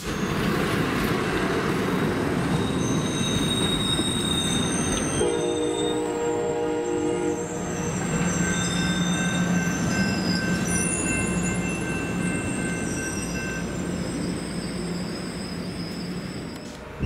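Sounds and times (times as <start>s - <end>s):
train wheels squealing: 0.0s - 1.0s, 2.1s - 17.0s
train rumble: 0.0s - 17.0s
train horn blast: 5.2s - 8.0s.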